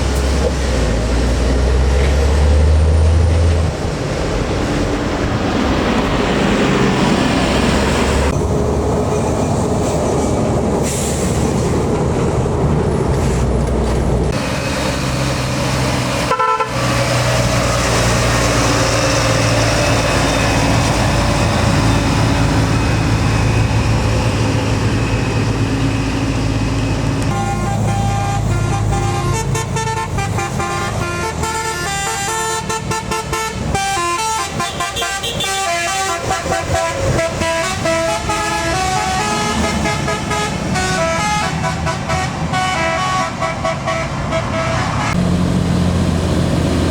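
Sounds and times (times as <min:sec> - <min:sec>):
diesel truck engine labouring: 0:00.0 - 0:46.9
vehicle horn changing notes: 0:16.3 - 0:16.9, 0:27.3 - 0:45.2.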